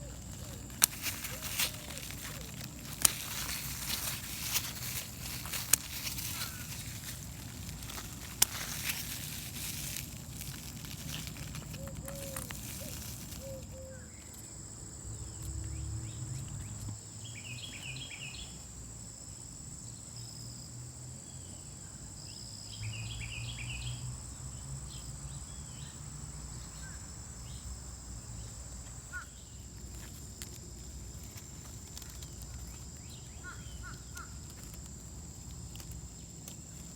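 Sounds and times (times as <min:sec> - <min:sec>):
crackling handling noise: 0:00.0 - 0:14.6, 0:29.7 - 0:36.9.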